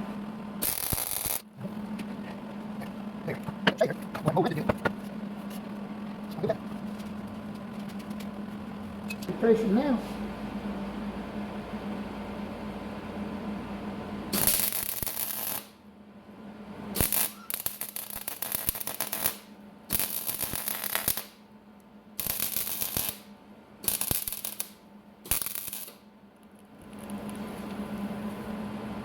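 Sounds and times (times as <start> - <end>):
welding arc crackling and sizzling: 0.0 - 3.7, 14.3 - 15.8, 16.9 - 21.5, 22.2 - 28.4
welder hum: 0.0 - 7.3, 8.0 - 15.9, 16.6 - 29.0.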